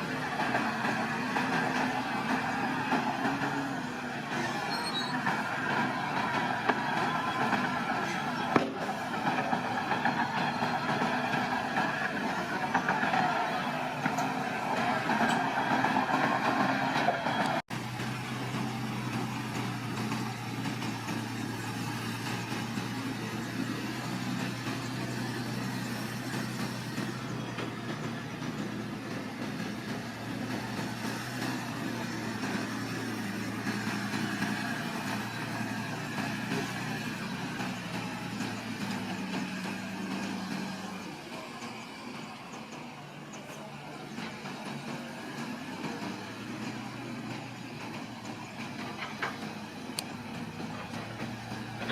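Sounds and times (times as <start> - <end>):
heavy machine engine running: 0.0 - 51.9.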